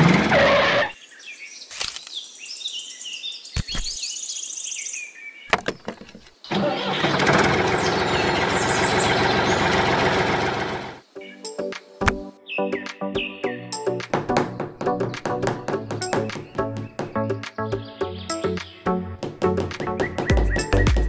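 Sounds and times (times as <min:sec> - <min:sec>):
birds chirping: 0:00.0 - 0:21.0
vehicle engine running: 0:06.5 - 0:11.0.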